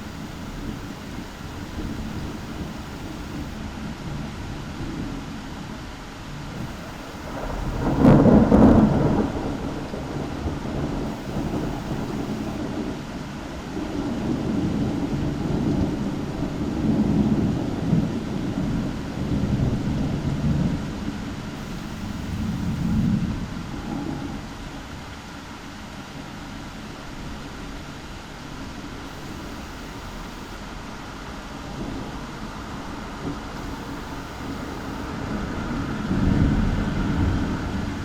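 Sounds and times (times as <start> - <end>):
thunder crack: 6.6 - 9.4.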